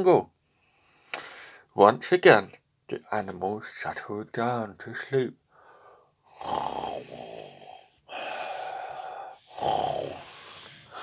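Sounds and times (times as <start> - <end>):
person imitating snoring: 6.3 - 10.6.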